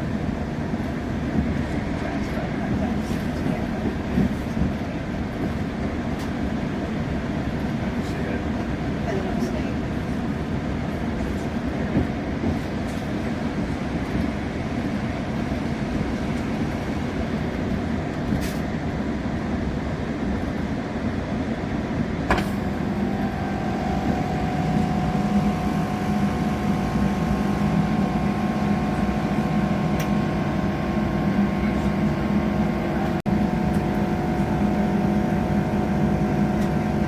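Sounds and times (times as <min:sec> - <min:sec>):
train wheels rumbling on track: 0:00.0 - 0:37.0
steady multi-tone hum: 0:22.7 - 0:37.0.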